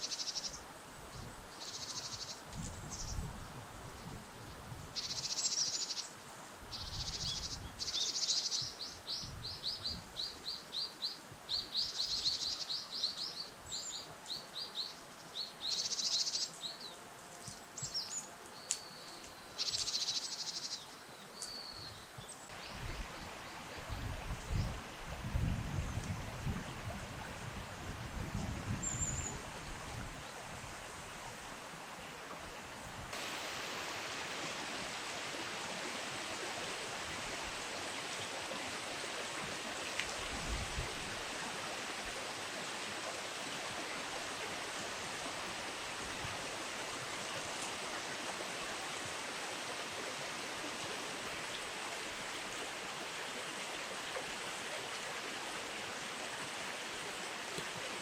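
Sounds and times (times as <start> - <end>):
river water rushing: 29.3 - 58.0.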